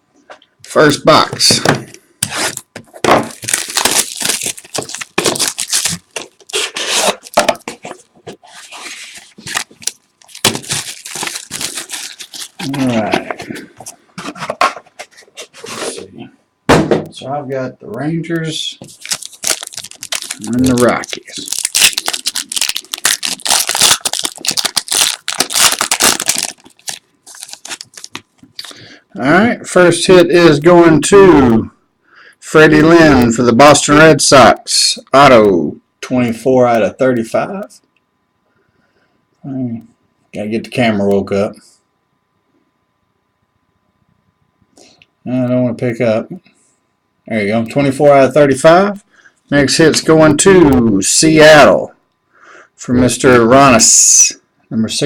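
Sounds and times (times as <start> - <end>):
wrapper and cardboard ripping: 2.3 - 13.4, 18.8 - 28.3.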